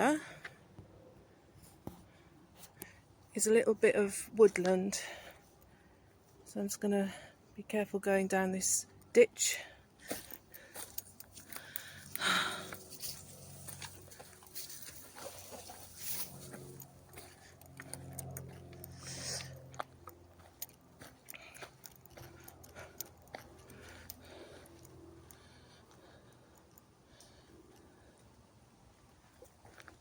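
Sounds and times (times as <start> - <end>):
brush of vegetation: 10.0 - 17.9
footsteps crunching through dry leaves: 10.2 - 17.4
low hum: 10.2 - 29.9.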